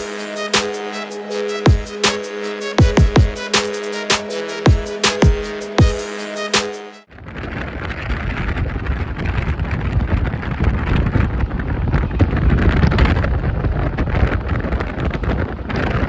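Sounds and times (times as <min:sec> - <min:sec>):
electronic music with heavy beat: 0:00.0 - 0:07.1
wind buffeting microphone: 0:07.1 - 0:16.0.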